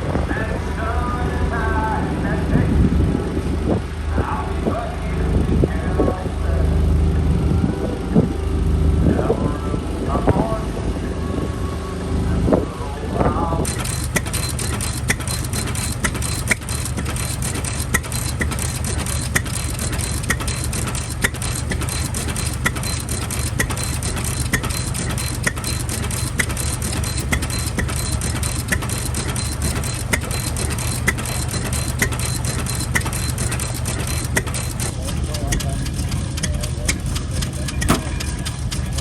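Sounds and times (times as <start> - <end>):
engine idling: 0.0 - 39.0
sharp regular clicking: 13.6 - 39.0.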